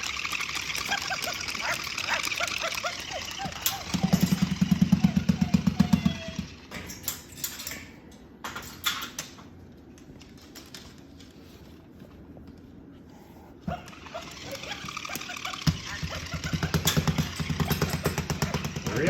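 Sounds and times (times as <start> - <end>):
vibrating toy buzzing: 0.0 - 7.0, 13.7 - 19.0.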